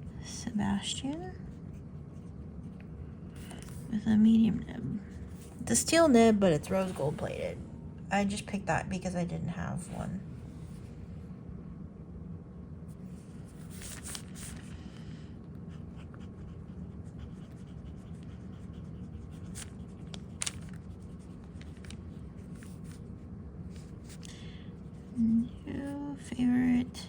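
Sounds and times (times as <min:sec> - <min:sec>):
steady low hum: 0:00.0 - 0:27.0
pen nib scratching paper: 0:15.6 - 0:23.2.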